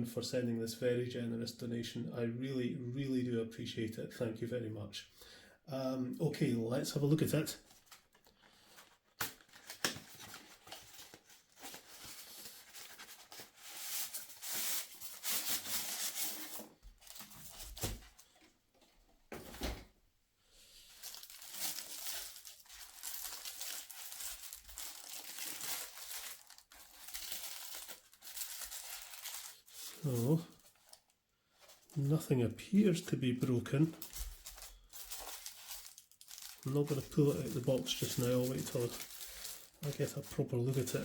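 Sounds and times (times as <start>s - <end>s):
paper and plastic wrapping tearing: 7.7s - 18.2s, 21.0s - 31.0s, 33.4s - 41.0s.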